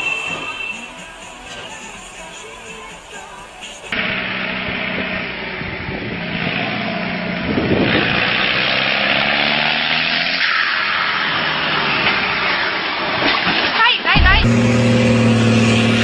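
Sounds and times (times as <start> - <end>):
heavy vehicle engine running hard: 0.0 - 9.6, 14.2 - 16.0
mechanical noise: 14.2 - 16.0.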